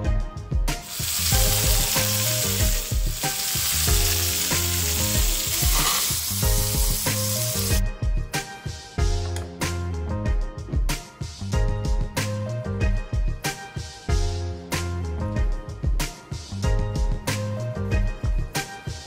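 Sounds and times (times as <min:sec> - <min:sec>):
background music with steady beat: 0:00.0 - 0:19.0
steak sizzling: 0:00.8 - 0:07.8.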